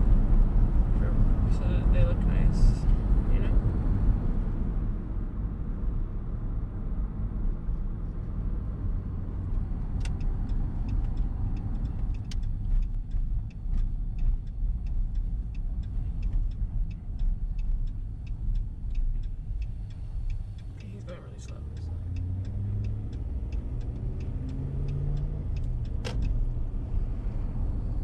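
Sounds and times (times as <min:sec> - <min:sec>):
road and engine rumble: 0:00.0 - 0:28.0
turn signal clicking: 0:08.0 - 0:28.0.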